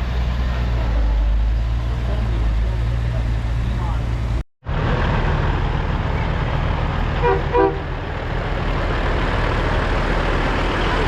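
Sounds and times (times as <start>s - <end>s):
vehicle engine and road noise: 0.0s - 11.0s
vehicle horn toots: 7.2s - 7.9s.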